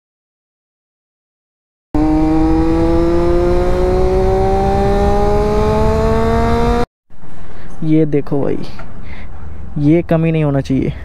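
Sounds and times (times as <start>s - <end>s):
motorcycle engine accelerating: 2.0s - 6.9s.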